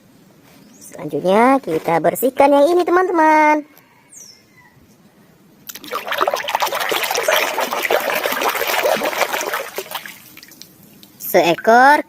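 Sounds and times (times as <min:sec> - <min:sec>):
water splashing in a basin: 0:05.7 - 0:11.8.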